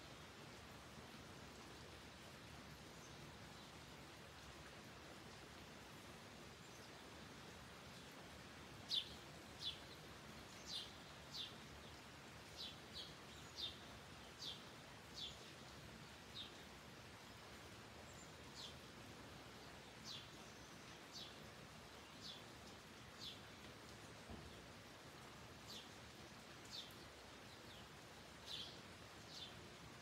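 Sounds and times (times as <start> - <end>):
light rain hiss: 0.0 - 30.0
songbird chirping: 7.8 - 30.0.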